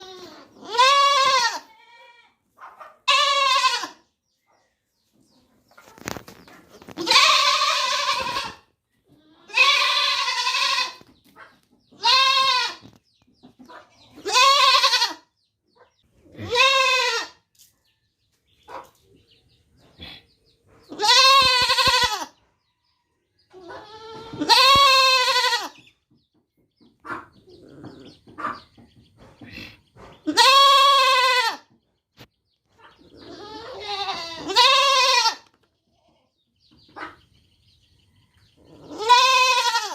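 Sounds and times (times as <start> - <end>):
young goat bleating: 0.0 - 2.4, 3.0 - 4.1, 6.9 - 11.1, 11.9 - 13.0, 14.2 - 15.3, 16.3 - 17.4, 20.9 - 22.4, 23.6 - 25.9, 30.2 - 31.7, 33.1 - 35.5, 38.8 - 39.9.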